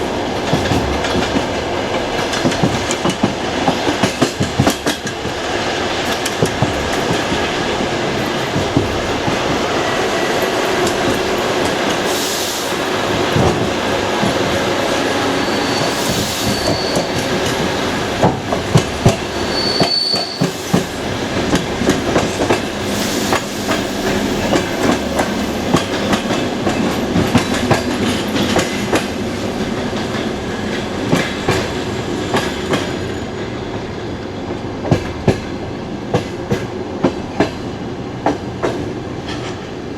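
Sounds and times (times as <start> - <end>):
train wheels clattering on rails: 0.0 - 39.9
short high squeal: 15.3 - 17.2, 19.5 - 20.5.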